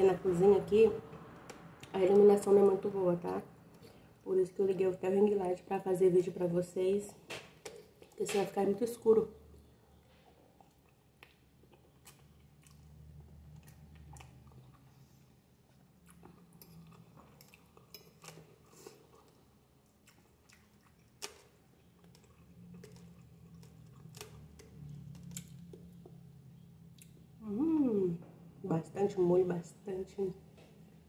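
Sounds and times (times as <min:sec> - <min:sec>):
faint low hum: 0:00.0 - 0:31.0
chewing spaghetti: 0:09.6 - 0:27.3.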